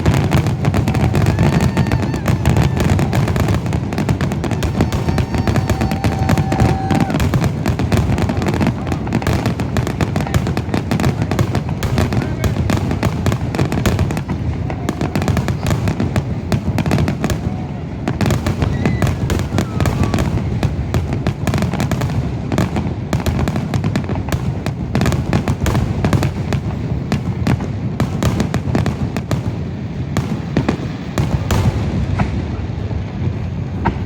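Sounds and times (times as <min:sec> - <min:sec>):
fireworks bursting: 0:00.0 - 0:34.0.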